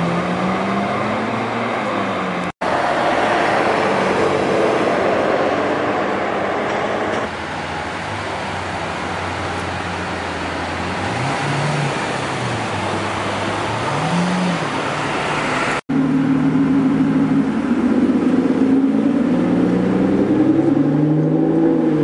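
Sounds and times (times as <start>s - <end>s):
sports car engine blipped: 15.9s - 22.0s
sports car engine pulling away: 16.0s - 22.0s.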